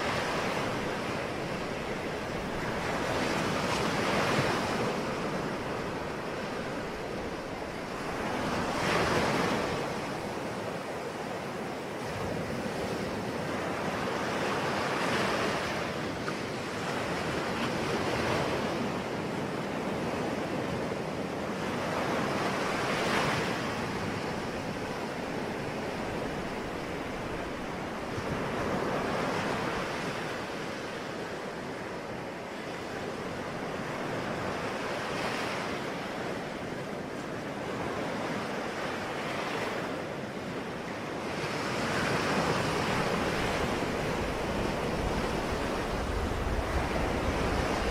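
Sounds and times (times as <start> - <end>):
ocean waves breaking: 0.0 - 47.9.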